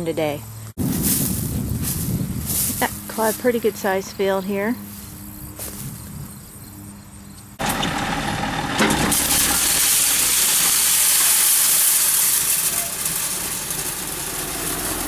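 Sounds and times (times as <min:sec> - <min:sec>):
tractor engine running: 0:07.6 - 0:15.0.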